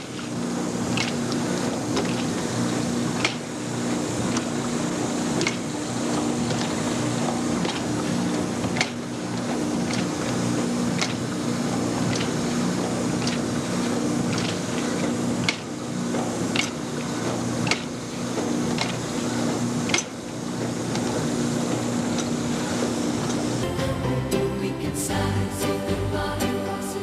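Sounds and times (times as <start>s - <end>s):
machine mechanical hum: 0.0s - 27.0s.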